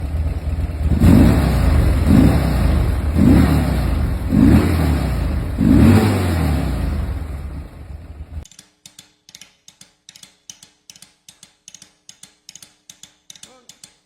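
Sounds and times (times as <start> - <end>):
motorcycle engine revving: 0.0 - 8.4.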